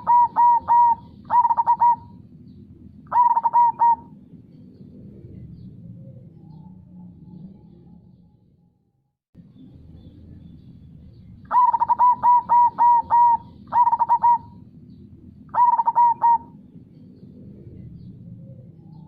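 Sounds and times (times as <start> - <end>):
dove cooing: 0.0 - 7.7, 11.5 - 14.7, 15.5 - 16.7.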